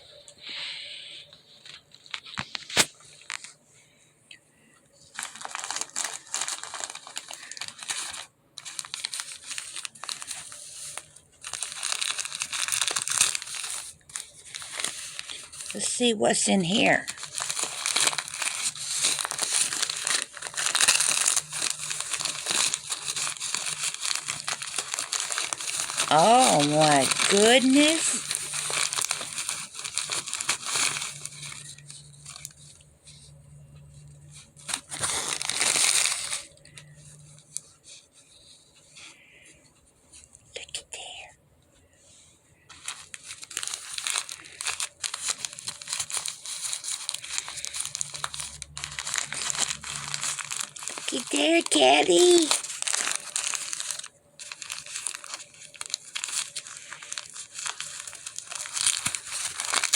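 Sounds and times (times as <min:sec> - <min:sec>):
gift wrapping crinkling: 0:00.2 - 0:04.0, 0:04.7 - 0:41.3, 0:42.0 - 0:59.9.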